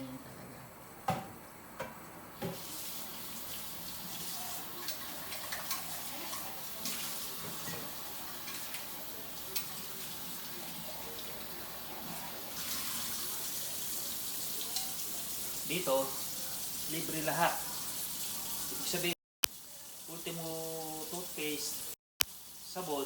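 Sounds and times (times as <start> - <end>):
tap running into a sink: 1.1 - 2.7.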